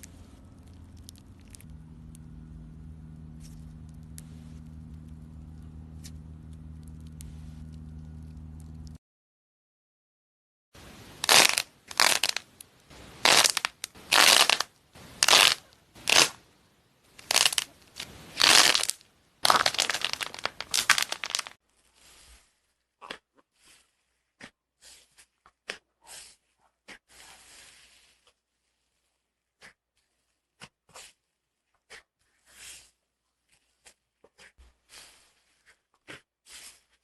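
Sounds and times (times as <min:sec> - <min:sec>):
slime squishing: 0:00.0 - 0:02.4, 0:13.0 - 0:16.4, 0:17.2 - 0:21.5.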